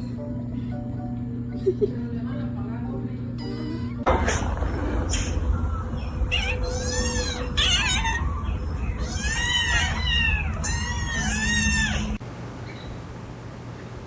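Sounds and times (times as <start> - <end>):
kittens mewing: 6.1 - 12.2.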